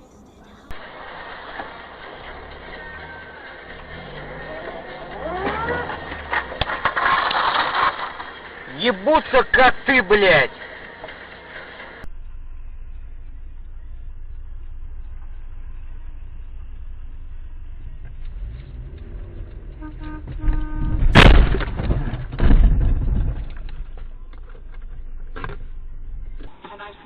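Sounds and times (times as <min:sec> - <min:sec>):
car road and engine rumble: 0:00.0 - 0:27.0
loud collision crash: 0:04.1 - 0:08.7, 0:20.0 - 0:24.0
car horn: 0:17.8 - 0:21.4.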